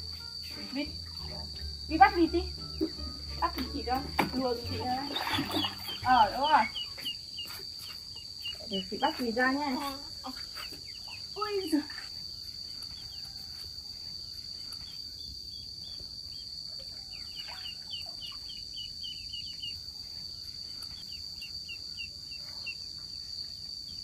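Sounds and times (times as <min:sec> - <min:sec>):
high-pitched insect drone: 0:00.0 - 0:15.4
ducklings peeping: 0:04.6 - 0:12.1, 0:16.3 - 0:19.8.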